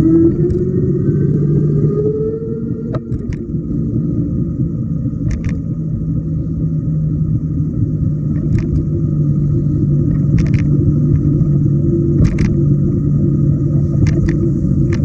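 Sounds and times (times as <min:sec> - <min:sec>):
wind and road rumble: 0:00.0 - 0:15.0
sharp clicks: 0:02.9 - 0:03.4, 0:05.3 - 0:05.6.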